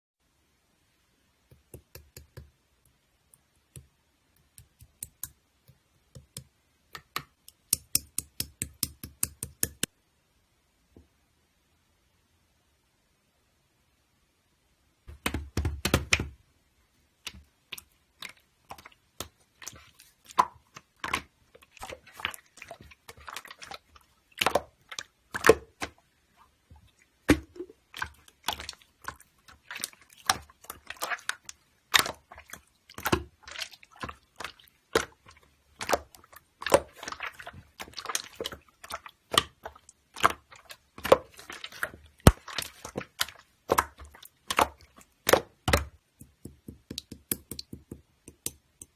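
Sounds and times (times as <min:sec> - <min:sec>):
sharp clicks and taps: 0:01.5 - 0:09.9, 0:45.3 - 0:48.9.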